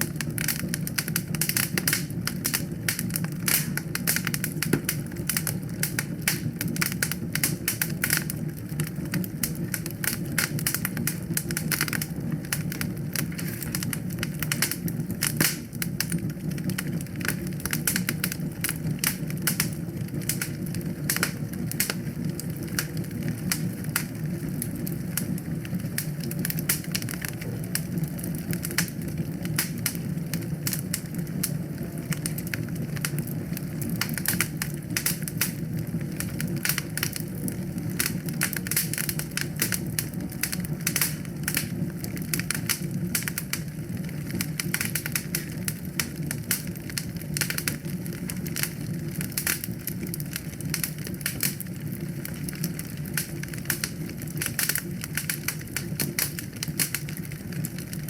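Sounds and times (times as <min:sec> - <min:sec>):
burning logs crackling and popping: 0:00.0 - 0:58.0
low rumble of flames: 0:00.0 - 0:58.0.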